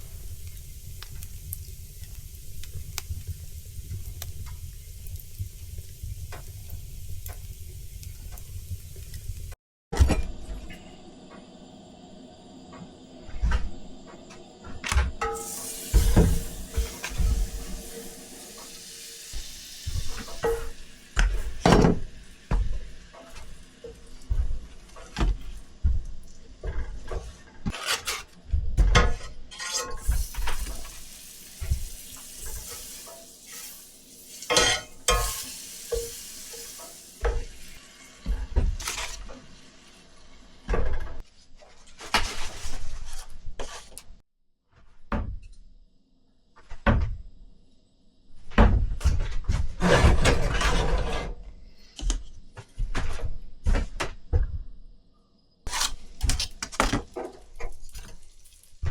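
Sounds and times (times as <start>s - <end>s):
sizzling hiss: 0.0s - 9.6s, 10.6s - 26.6s, 30.0s - 40.8s
pots and pans clattering: 15.1s - 25.6s, 26.6s - 39.5s, 49.8s - 51.4s.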